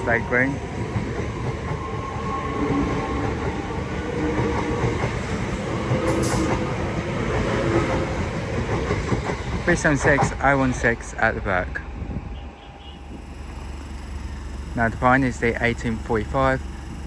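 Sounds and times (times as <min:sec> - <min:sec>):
train wheels rumbling on rail: 0:00.0 - 0:17.0
faint humming tones: 0:12.8 - 0:17.0.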